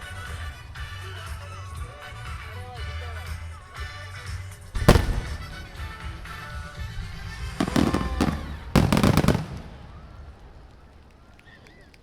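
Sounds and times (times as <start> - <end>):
music playing: 0.0 - 10.0
fireworks bursting: 4.6 - 12.0.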